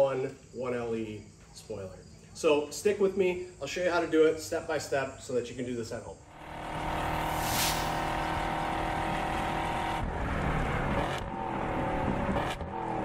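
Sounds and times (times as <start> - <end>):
racing car engines: 6.3 - 13.0
brief falling hiss: 7.3 - 8.1.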